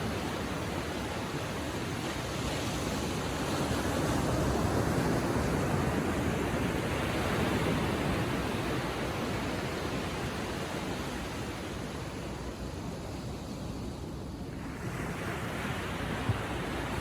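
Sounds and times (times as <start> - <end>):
ocean waves lapping on shore: 0.0 - 17.0.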